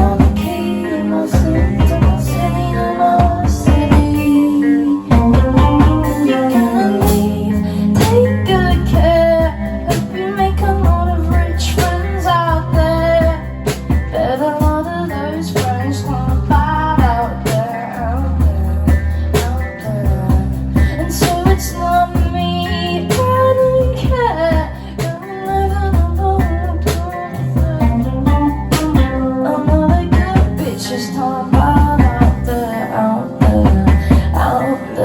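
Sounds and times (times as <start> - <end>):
guitar: 0.0 - 35.0
held bass notes: 0.0 - 35.0
drum kit hits: 5.1 - 7.4.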